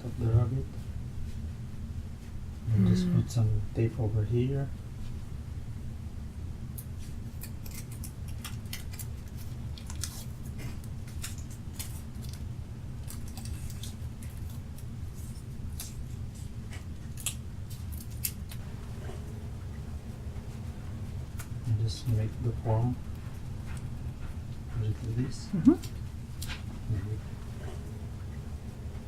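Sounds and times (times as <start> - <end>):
steady low hum: 0.0 - 29.0
sticky tape pulled and torn: 7.3 - 12.4.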